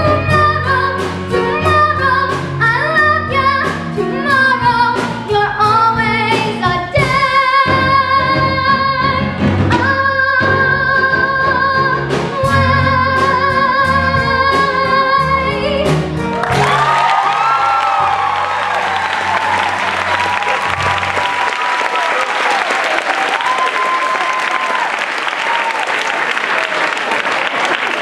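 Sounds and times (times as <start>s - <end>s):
pit orchestra playing: 0.0s - 22.1s
audience applause: 16.3s - 28.0s.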